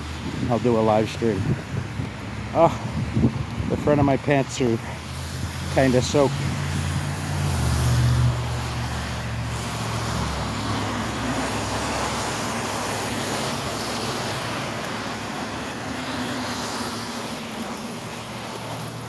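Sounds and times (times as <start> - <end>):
vehicle engine hum: 0.0 - 19.0
tyre hiss on wet road: 4.4 - 19.0.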